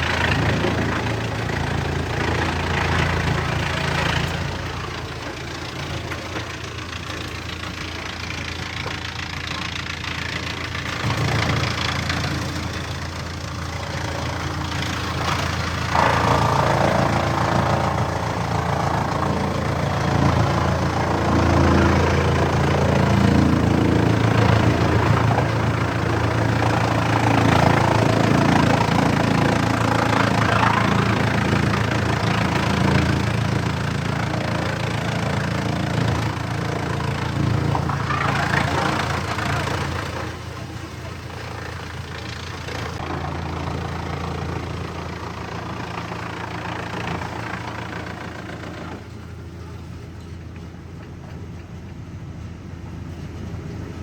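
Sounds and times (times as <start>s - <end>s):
wood chipper engine running: 0.0s - 54.0s.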